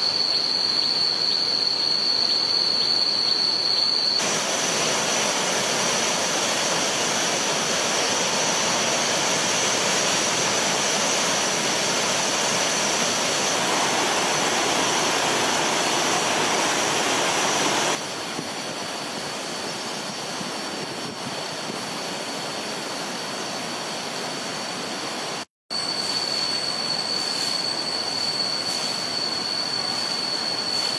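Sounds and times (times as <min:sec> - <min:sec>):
river water rushing: 0:04.2 - 0:18.0.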